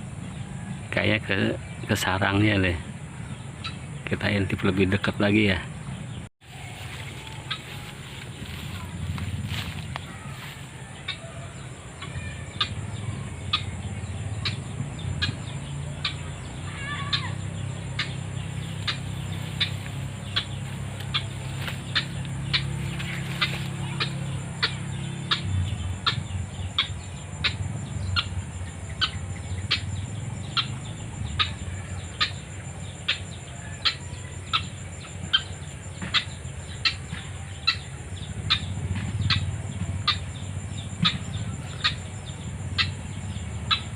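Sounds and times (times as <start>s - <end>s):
waterhen calling harsh notes: 16.0s - 26.2s.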